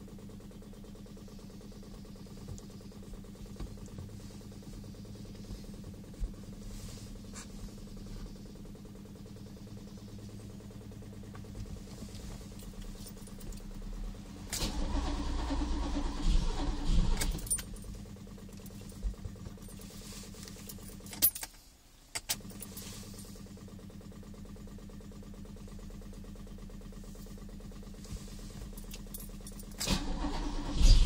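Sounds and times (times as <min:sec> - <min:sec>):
engine cranking and starting: 0:10.4 - 0:21.5, 0:27.2 - 0:31.0.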